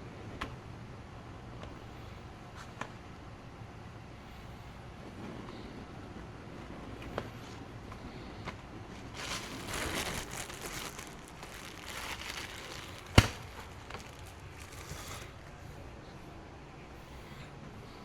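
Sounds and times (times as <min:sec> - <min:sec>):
crinkling and rustling: 0:09.0 - 0:15.8.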